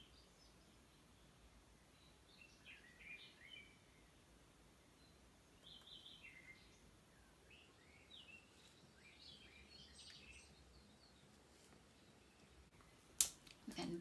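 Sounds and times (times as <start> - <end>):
faint bird chirps and whistles: 0.0 - 4.2, 4.8 - 11.3.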